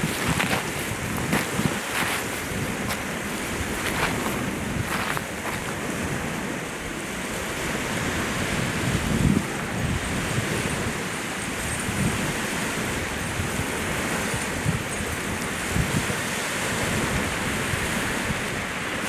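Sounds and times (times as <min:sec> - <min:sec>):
waves slapping against shore: 0:00.0 - 0:06.6
wind buffeting microphone: 0:00.0 - 0:11.0.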